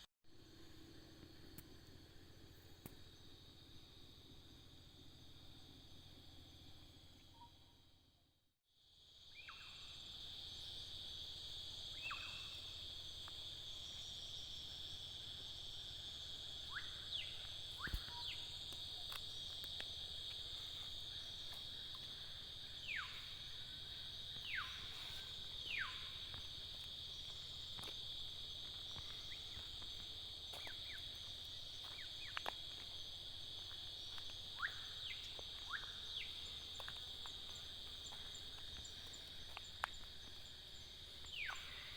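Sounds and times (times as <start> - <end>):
insects droning: 0.3 - 41.9.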